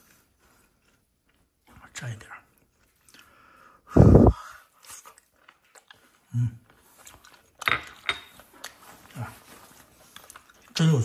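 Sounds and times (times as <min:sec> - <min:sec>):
person humming: 0:04.0 - 0:04.4
person chewing: 0:04.0 - 0:10.9.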